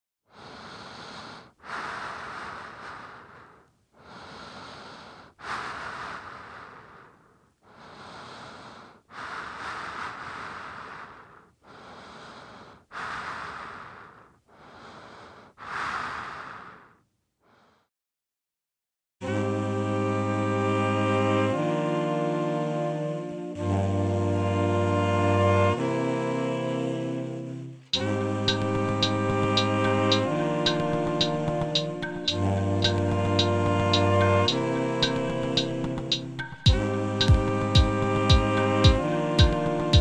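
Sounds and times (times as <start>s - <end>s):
person breathing heavily: 0.3s - 17.9s.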